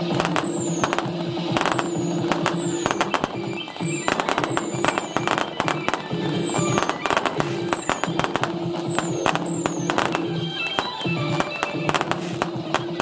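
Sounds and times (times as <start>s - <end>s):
fireworks bangs and crackling: 0.0s - 13.0s
music playing: 0.0s - 13.0s.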